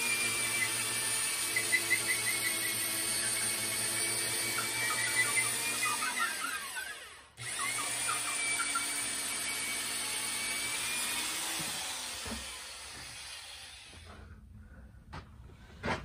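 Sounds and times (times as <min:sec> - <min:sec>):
power drill boring through wood: 0:00.0 - 0:14.2.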